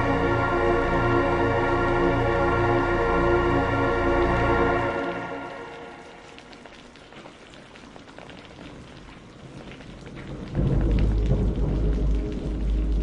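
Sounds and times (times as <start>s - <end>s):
rain patter: 0.0s - 13.0s
loud low thunder rumble: 10.3s - 13.0s.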